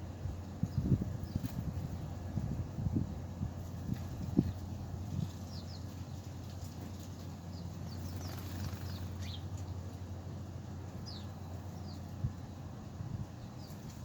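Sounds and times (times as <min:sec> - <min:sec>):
small birds chirping: 0:00.0 - 0:02.5, 0:03.6 - 0:14.0
steady low rumble: 0:00.0 - 0:14.0.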